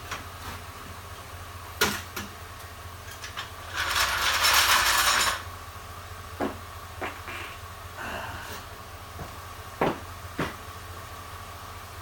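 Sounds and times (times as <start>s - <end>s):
mechanical ratcheting rattle: 3.6s - 5.4s.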